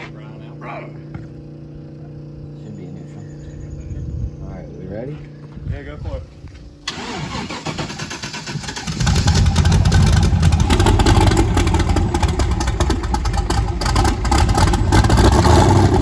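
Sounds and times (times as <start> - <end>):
car engine cranking and starting: 6.8 - 16.0.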